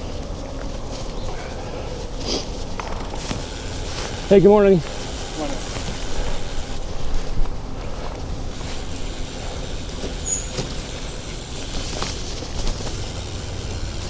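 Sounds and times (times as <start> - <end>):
bicycle riding rumble: 0.0 - 14.0
short high squeak: 10.0 - 11.1.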